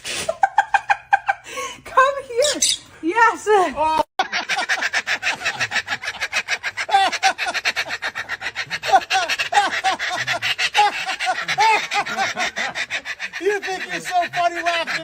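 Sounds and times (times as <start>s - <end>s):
parrot imitating laughter: 4.2s - 15.0s.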